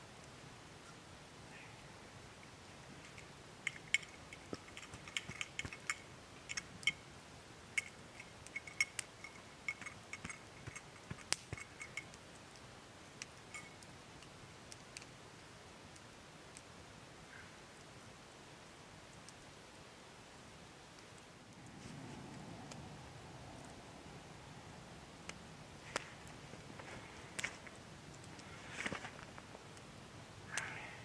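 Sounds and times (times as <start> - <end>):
sharp ticks and clicks: 2.9 - 16.7.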